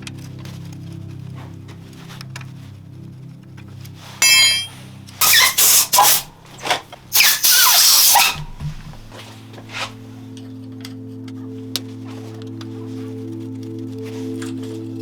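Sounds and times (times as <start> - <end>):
background music: 0.0 - 7.2, 8.4 - 15.0
loud high squeal: 4.2 - 6.2, 7.2 - 8.4
loud hissing bursts: 4.2 - 6.3, 7.1 - 8.4.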